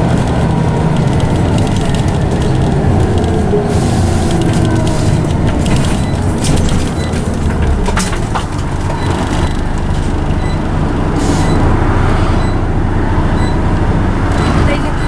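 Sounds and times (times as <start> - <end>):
body rattles and creaks: 0.0 - 11.0
bus engine drone: 0.0 - 15.0
gearbox whine: 0.0 - 15.0.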